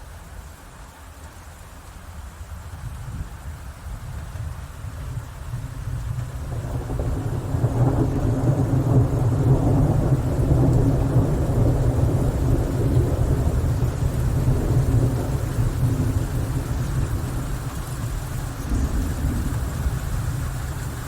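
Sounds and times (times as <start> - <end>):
rain: 0.0 - 21.0
thunder rolling: 5.1 - 21.0.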